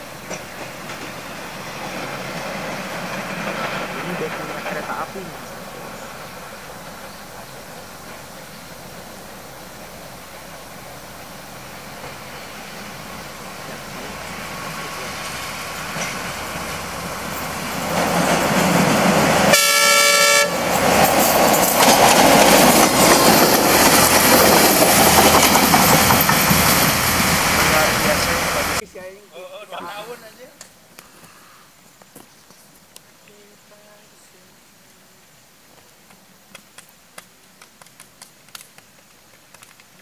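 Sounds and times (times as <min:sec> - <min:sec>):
train running past: 0:00.0 - 0:30.2
train horn blast: 0:19.5 - 0:20.7.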